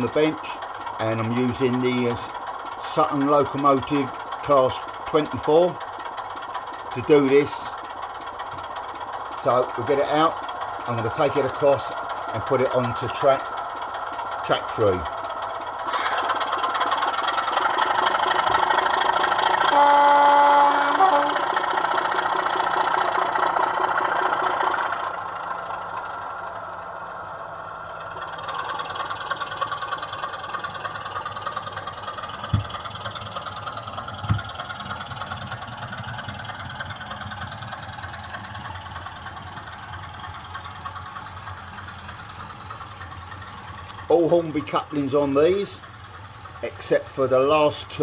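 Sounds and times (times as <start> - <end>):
diesel engine running: 0.0 - 48.0
locomotive horn: 19.6 - 21.6
sharp knocks: 32.4 - 32.8.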